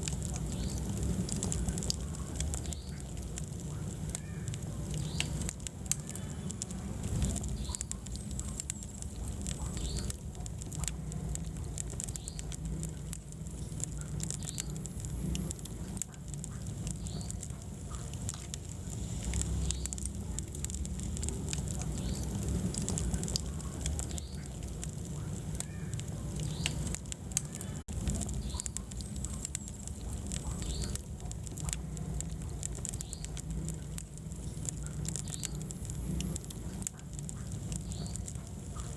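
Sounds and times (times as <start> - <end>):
fire crackling and popping: 0.0 - 38.9
fire flames rumbling: 0.0 - 38.9.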